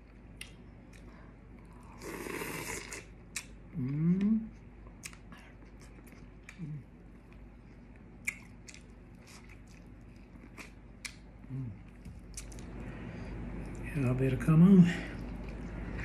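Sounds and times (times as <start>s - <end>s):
chewing corn on the cob: 2.8s - 12.7s
person humming: 3.7s - 4.5s, 11.4s - 11.8s.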